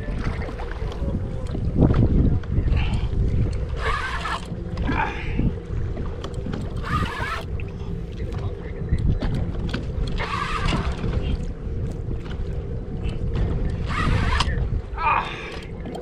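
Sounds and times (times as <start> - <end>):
water against kayak hull: 0.0 - 16.0
wind buffeting microphone: 0.0 - 16.0.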